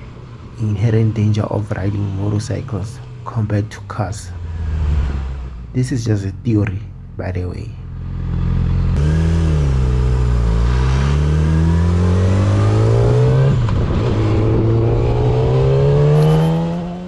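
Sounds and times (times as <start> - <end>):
motorcycle engine accelerating: 7.9 - 17.0.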